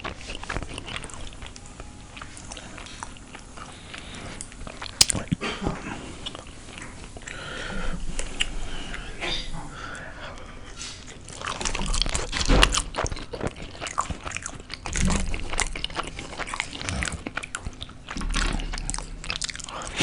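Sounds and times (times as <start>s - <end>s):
person chewing food: 0.0s - 9.2s, 9.8s - 20.0s
wet mouth clicks: 4.5s - 5.4s.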